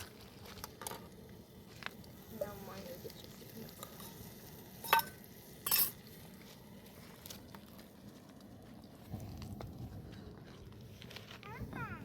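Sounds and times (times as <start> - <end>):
metal kitchenware clinking: 4.8 - 6.0.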